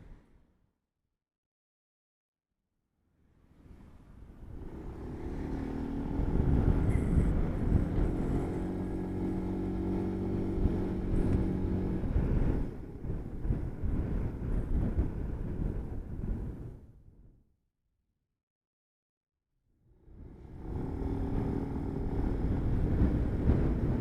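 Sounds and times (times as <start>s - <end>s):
wind and road noise: 3.2s - 17.4s, 19.8s - 24.0s
motor scooter engine hum: 3.8s - 16.7s, 20.2s - 24.0s.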